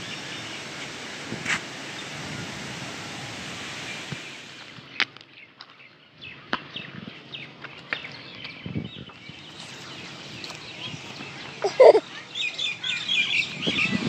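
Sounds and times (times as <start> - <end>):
small birds chirping and twittering: 0.0 - 1.0, 3.8 - 14.0.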